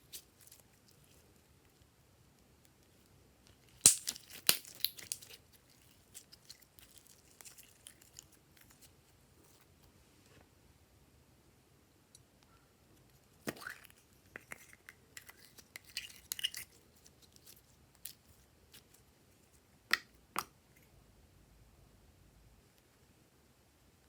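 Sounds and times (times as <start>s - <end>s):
slime squelching and crackling: 3.5s - 8.9s.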